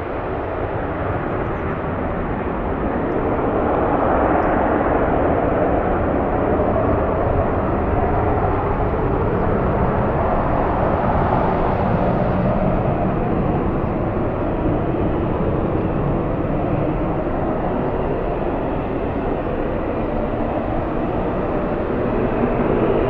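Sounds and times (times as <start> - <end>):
jet engines rumbling: 4.6 - 23.0.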